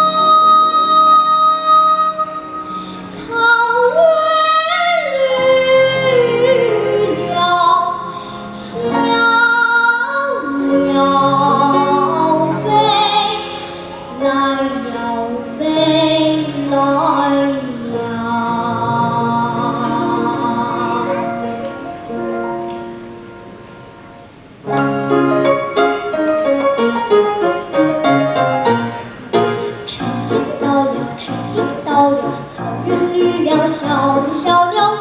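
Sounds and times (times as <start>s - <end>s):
girl singing folk song: 0.0s - 22.2s, 29.4s - 35.0s
instrumental accompaniment: 0.0s - 35.0s.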